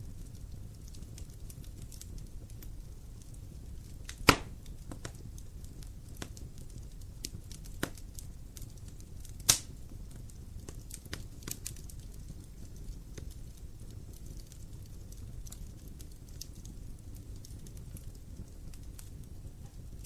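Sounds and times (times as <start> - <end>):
wood fire crackling: 0.0 - 20.0
loud sharp fire pops: 4.0 - 5.2, 5.8 - 8.2, 9.2 - 9.9.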